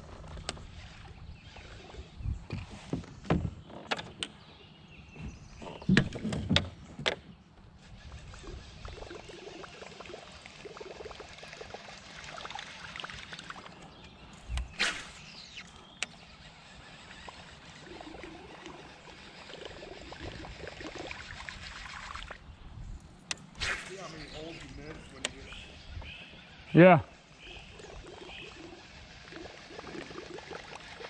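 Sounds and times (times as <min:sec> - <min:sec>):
creek water flowing: 0:07.9 - 0:22.5, 0:23.6 - 0:31.0.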